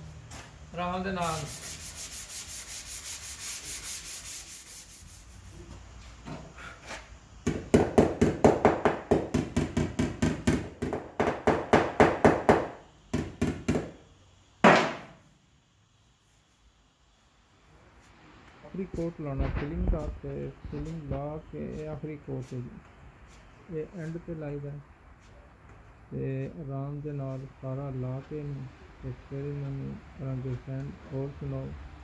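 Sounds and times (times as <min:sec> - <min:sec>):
sandpaper sanding strokes: 0:00.4 - 0:05.7, 0:20.7 - 0:24.2.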